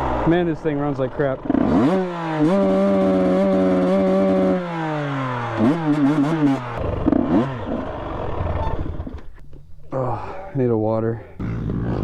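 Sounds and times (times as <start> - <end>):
dirt bike engine revving: 0.0 - 9.4, 11.4 - 12.0
man talking: 0.2 - 1.4, 9.9 - 11.4.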